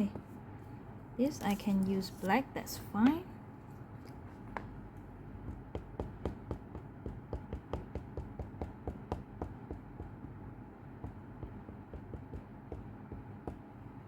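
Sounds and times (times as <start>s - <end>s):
stamp tapping on ink pad: 5.4s - 10.3s, 11.0s - 13.7s.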